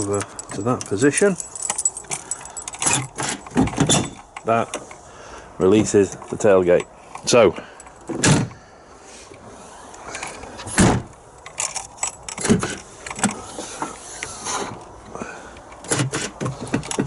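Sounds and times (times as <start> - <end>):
metallic clicks and rattles: 0.0 - 4.9, 11.4 - 13.4
latch releasing with a heavy clunk: 2.8 - 4.2, 8.1 - 8.6.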